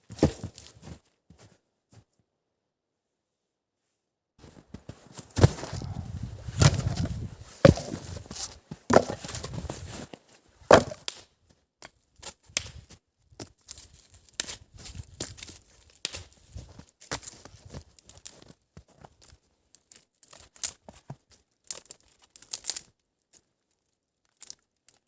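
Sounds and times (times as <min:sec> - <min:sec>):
axe chopping wood: 0:06.6 - 0:08.1, 0:08.9 - 0:09.5, 0:10.7 - 0:11.2.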